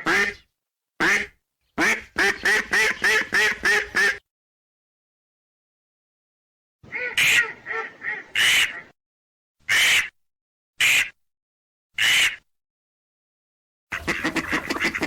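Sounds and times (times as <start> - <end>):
ducks quacking: 0.0 - 0.4, 1.0 - 4.2, 6.8 - 8.9, 12.0 - 12.4, 13.9 - 15.0.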